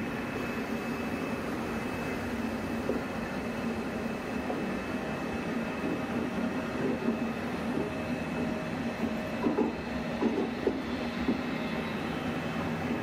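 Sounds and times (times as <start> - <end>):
train coaches rolling: 0.0 - 13.0.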